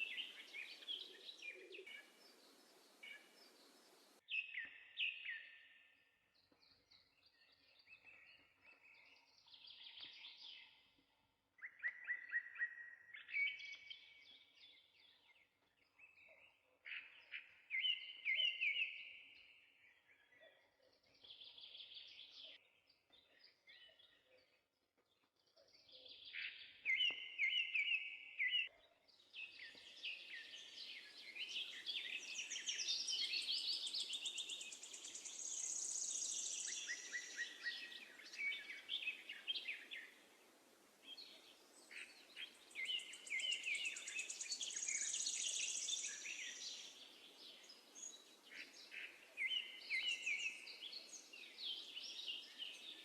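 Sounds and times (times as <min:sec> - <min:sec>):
sparrows chirping: 0:00.0 - 0:05.8, 0:11.6 - 0:20.5, 0:25.2 - 0:40.4, 0:41.0 - 0:53.0.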